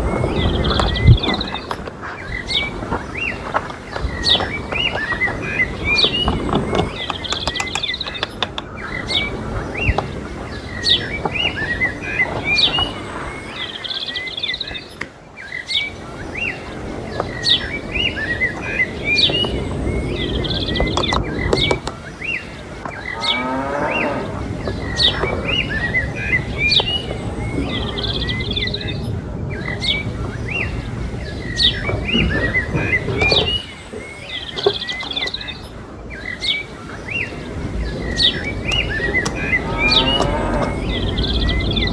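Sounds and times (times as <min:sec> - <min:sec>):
birds chirping: 0:00.0 - 0:41.9
cow mooing: 0:23.0 - 0:24.4, 0:39.4 - 0:41.0.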